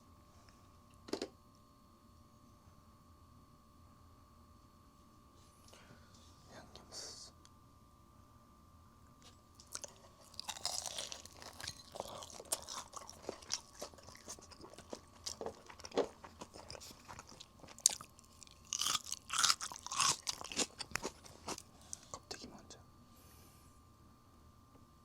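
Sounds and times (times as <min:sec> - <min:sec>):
chewing crispy fried chicken: 0:09.2 - 0:22.4.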